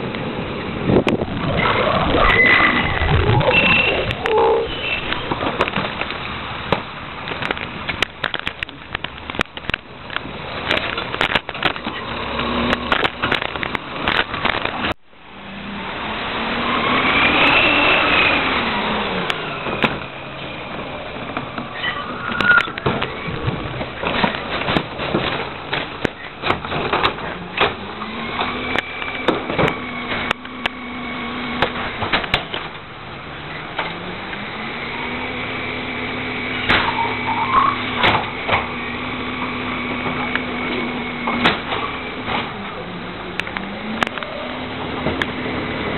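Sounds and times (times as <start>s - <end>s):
garbage truck engine revving: 0.2s - 8.0s, 10.2s - 45.9s
trash knocking and clattering: 5.0s - 11.9s, 22.7s - 30.3s, 41.2s - 42.6s.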